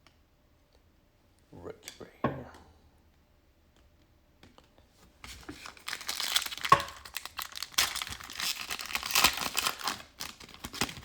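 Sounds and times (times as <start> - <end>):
wrapper crinkling and tearing: 5.3 - 11.0
sharp wrapper crack: 5.6 - 11.0.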